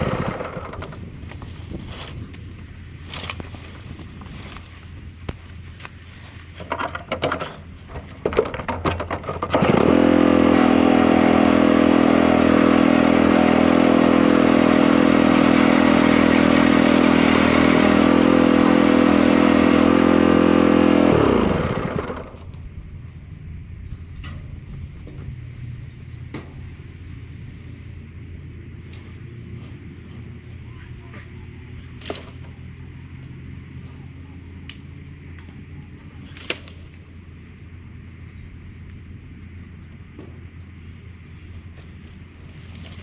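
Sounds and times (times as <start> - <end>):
engine revving high: 9.5 - 22.4.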